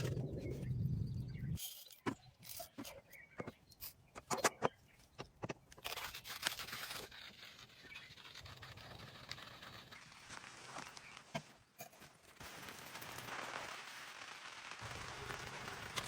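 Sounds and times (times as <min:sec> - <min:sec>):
clicks knocks and scraping: 0:01.6 - 0:10.0.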